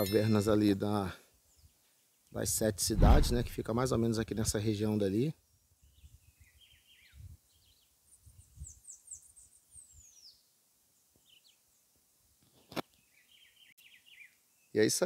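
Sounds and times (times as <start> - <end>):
soft low rumbles: 2.9 - 3.7.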